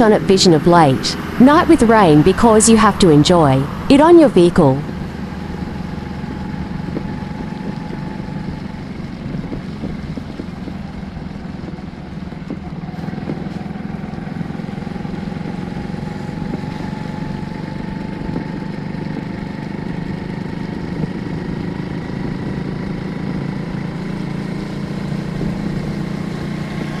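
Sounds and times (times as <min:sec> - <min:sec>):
faint drifting tones: 0:00.0 - 0:18.6
vehicle hum: 0:00.0 - 0:27.0.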